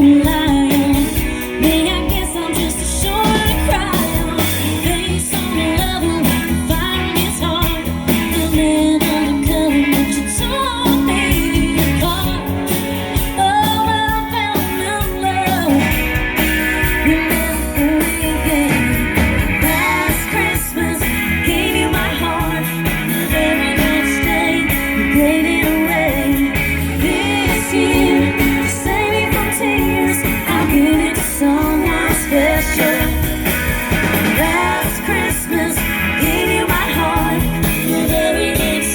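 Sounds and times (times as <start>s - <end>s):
lead singer singing: 0.0s - 16.2s, 16.8s - 38.9s
guitar: 0.0s - 38.9s
live band playing: 0.0s - 38.9s.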